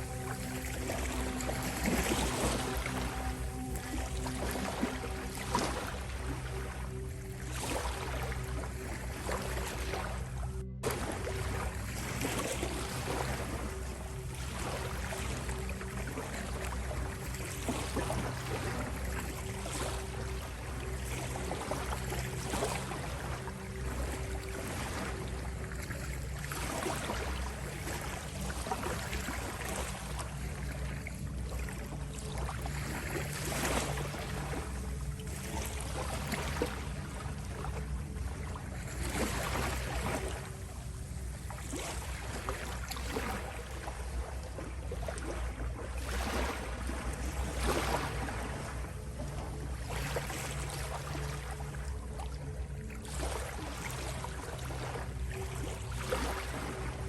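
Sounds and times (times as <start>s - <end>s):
ocean waves washing in: 0.0s - 30.4s
steady low hum: 0.0s - 57.0s.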